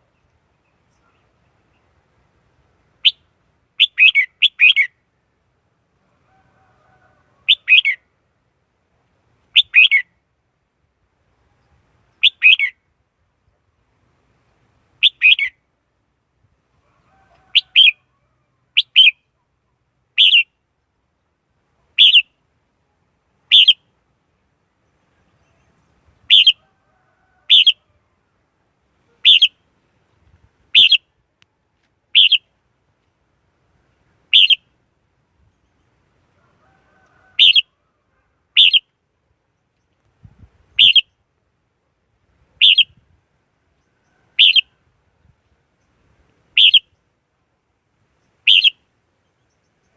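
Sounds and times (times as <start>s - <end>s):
bird call notes: 23.5s - 23.9s, 29.1s - 29.6s, 32.1s - 32.5s, 34.3s - 34.7s, 37.0s - 37.8s, 38.6s - 39.0s, 40.8s - 41.2s, 42.6s - 43.0s, 44.4s - 44.7s, 46.6s - 47.0s, 48.4s - 49.9s.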